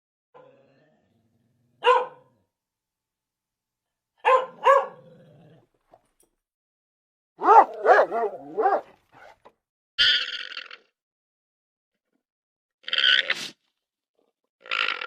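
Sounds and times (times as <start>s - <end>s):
dog barking: 1.8s - 2.4s, 4.2s - 5.2s, 7.4s - 9.4s.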